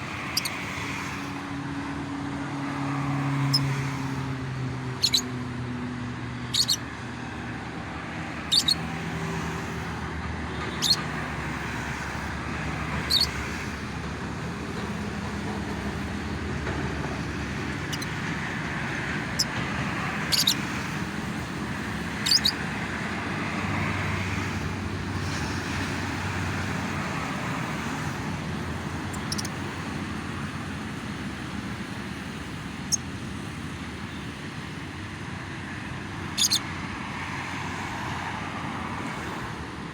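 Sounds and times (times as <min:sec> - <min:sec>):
road traffic noise: 0:00.0 - 0:39.9
lovebirds chirping: 0:05.0 - 0:05.3, 0:06.5 - 0:06.8, 0:08.5 - 0:08.9, 0:13.0 - 0:13.4, 0:17.8 - 0:18.2, 0:19.3 - 0:20.7, 0:22.2 - 0:22.6, 0:29.1 - 0:29.6.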